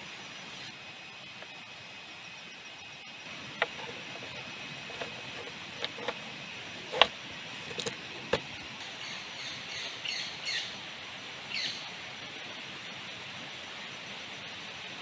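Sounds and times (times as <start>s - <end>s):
thin high whine: 0.0s - 8.9s
steady background hiss: 0.0s - 15.0s.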